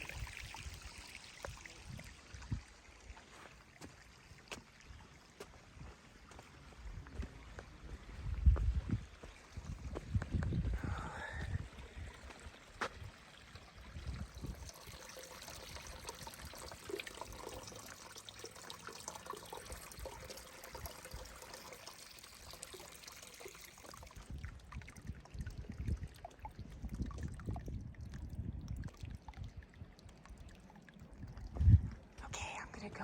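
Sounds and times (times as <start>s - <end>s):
water trickling and pouring: 0.0s - 33.0s
low microphone rumbles: 7.9s - 12.2s, 31.2s - 32.6s.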